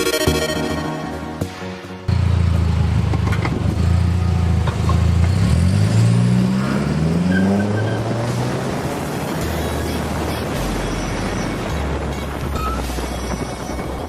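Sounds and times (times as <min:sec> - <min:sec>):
car engine accelerating: 0:02.1 - 0:12.1.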